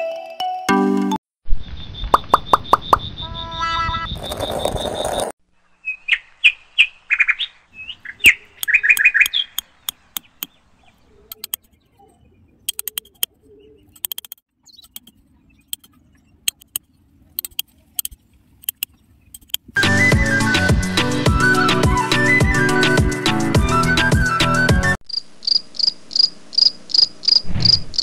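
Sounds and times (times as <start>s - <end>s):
bird chirping: 1.6s - 19.7s
sharp clicks of nail in soil: 12.7s - 13.3s, 14.0s - 15.9s, 16.5s - 16.8s, 17.4s - 19.7s
nail scraping sandy soil: 13.9s - 15.9s.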